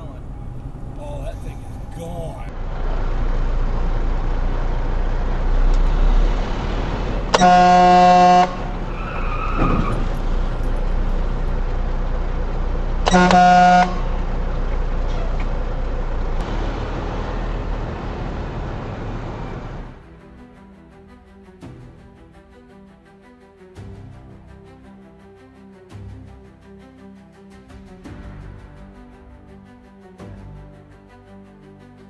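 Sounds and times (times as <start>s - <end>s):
vehicle road and engine noise: 0.0s - 20.4s
vehicle horn blasts: 7.3s - 8.8s, 13.1s - 14.2s.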